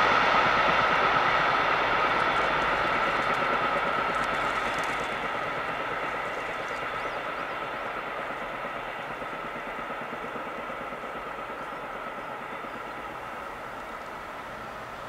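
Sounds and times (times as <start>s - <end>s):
train rolling rumble: 0.0s - 15.0s
faint bird chirps: 6.2s - 7.9s.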